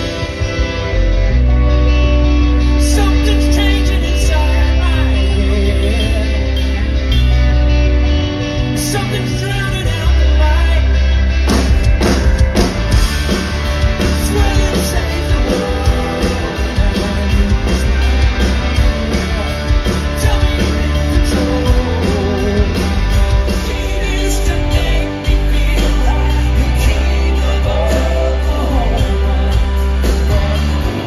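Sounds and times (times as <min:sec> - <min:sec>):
drums: 0:00.0 - 0:31.0
heavy bass: 0:00.0 - 0:31.0
person singing: 0:02.6 - 0:07.2, 0:13.9 - 0:31.0.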